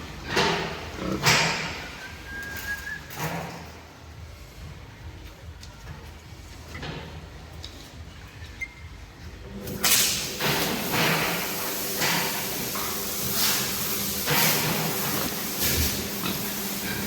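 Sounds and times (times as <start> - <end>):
spraying water hiss: 9.8 - 17.0.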